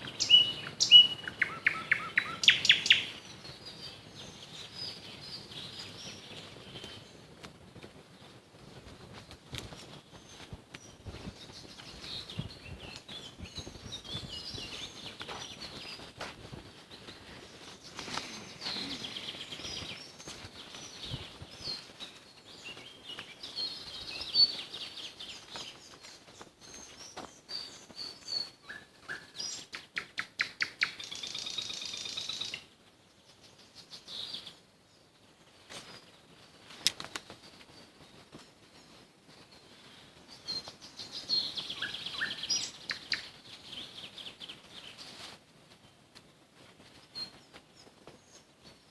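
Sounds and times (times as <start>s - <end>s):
songbirds singing: 0.0s - 7.4s, 9.4s - 46.1s.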